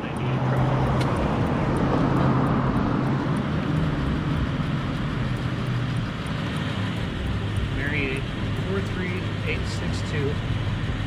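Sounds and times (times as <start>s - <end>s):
passing road traffic: 0.0s - 11.0s.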